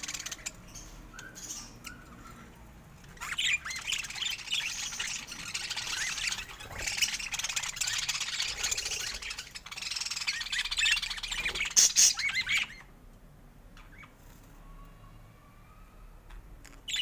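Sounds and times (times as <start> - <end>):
budgerigars chattering: 0.0 - 12.9.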